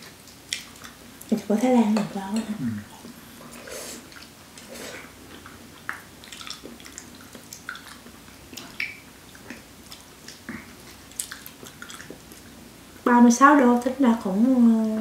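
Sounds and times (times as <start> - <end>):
people chewing soft food: 0.0 - 1.4, 2.5 - 13.0.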